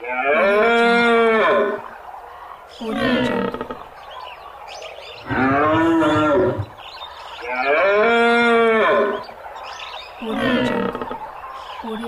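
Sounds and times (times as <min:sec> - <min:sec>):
large hoofed animal calling: 0:05.2 - 0:06.8.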